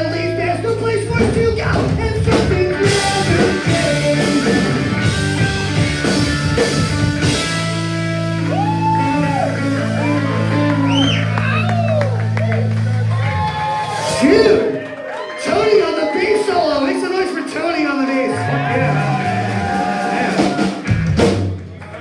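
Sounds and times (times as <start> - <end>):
punk rock band playing live: 0.0 - 14.8, 18.3 - 21.7
sliding high guitar notes: 2.8 - 13.3.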